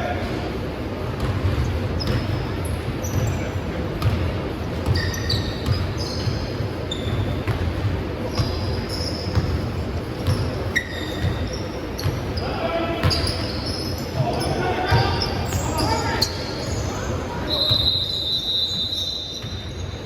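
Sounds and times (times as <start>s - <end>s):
short high squeaks: 10.3s - 12.5s.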